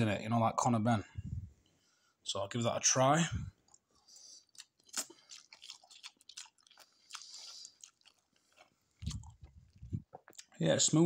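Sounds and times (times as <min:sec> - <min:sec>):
person chewing noodles: 0:03.6 - 0:10.6.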